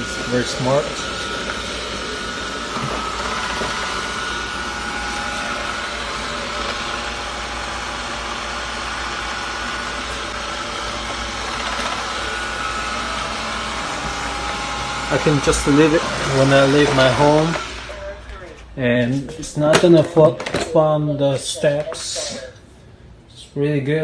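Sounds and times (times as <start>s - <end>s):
robot vacuum whirring: 0.0s - 18.4s.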